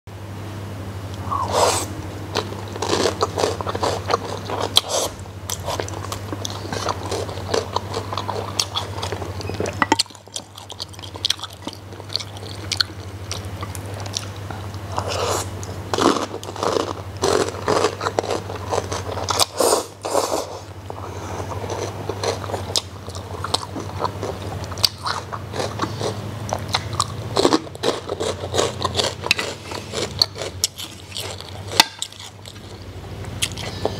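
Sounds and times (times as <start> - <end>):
steady low hum: 0.1 - 33.9
noodles being chewed: 1.2 - 33.9
crispy pork skin crunching: 21.6 - 33.9.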